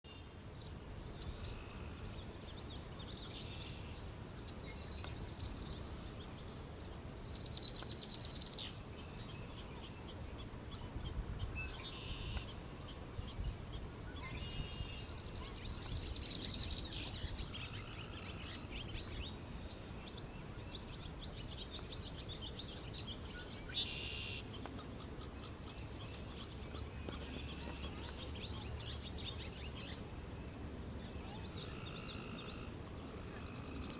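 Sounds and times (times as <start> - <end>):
swallow twittering: 10.7 - 30.1, 30.9 - 33.9.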